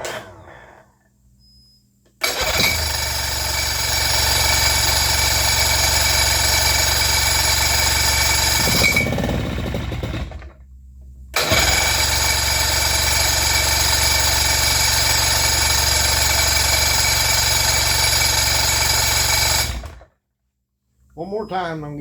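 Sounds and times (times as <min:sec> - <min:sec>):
outboard motor running: 0:11.4 - 0:20.0.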